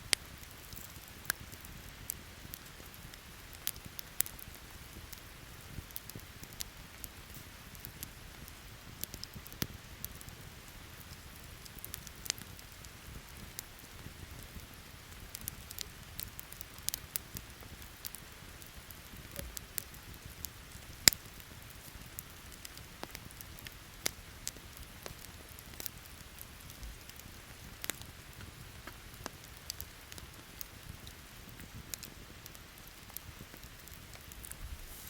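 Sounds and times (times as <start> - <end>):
campfire crackling and popping: 0.0 - 35.0
rain hissing: 34.4 - 35.0.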